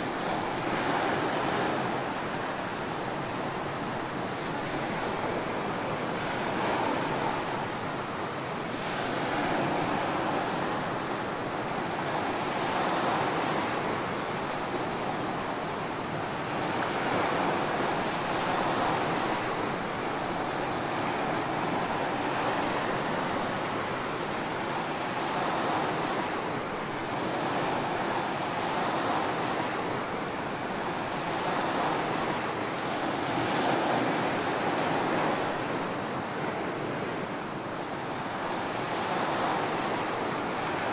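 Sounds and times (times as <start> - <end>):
ocean waves breaking on sand: 0.0 - 40.9.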